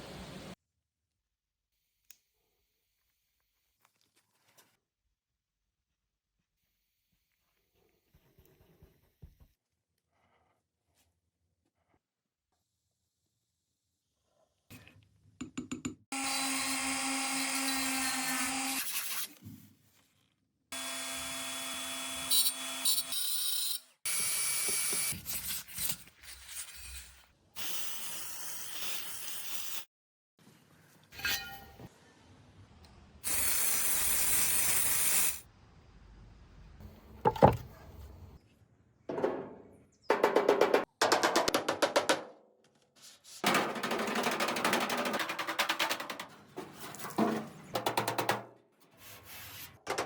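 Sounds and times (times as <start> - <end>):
knocks and clunks: 37.0 - 38.2, 39.1 - 40.5.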